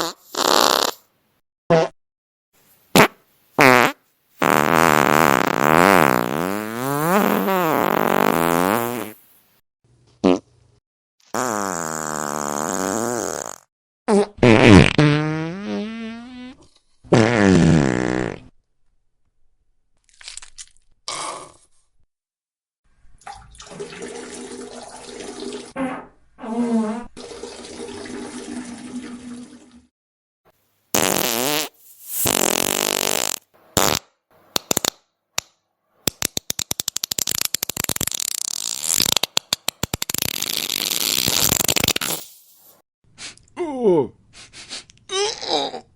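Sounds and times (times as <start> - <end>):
farts: 0.0 - 1.1, 3.0 - 9.2, 10.2 - 10.5, 11.3 - 18.6, 25.7 - 27.2, 30.9 - 34.0, 37.0 - 42.3.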